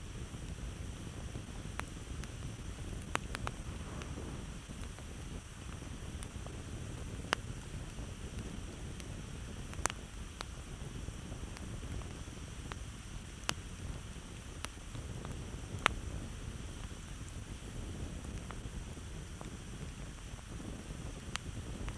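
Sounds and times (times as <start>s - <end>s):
campfire crackling and popping: 0.3s - 21.9s.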